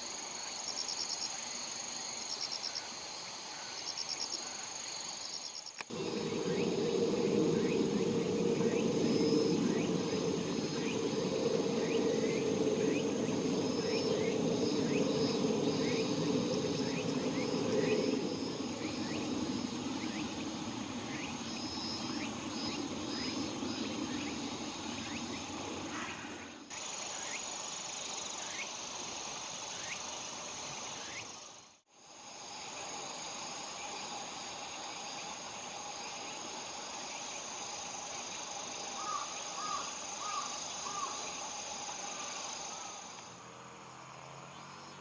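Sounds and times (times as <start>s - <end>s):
insects chirring: 0.0s - 45.0s
low rumble: 5.9s - 26.7s.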